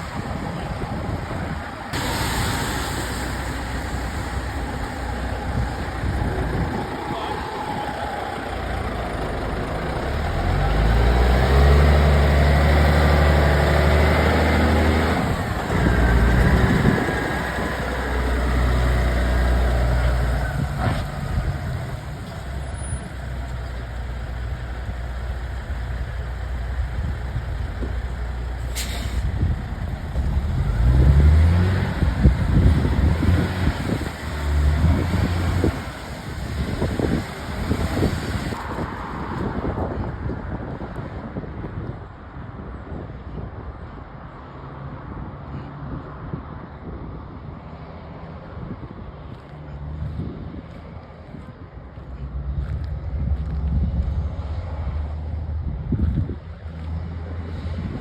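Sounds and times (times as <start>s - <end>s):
heavy diesel engine running: 0.0s - 39.0s
short hiss: 28.7s - 29.4s.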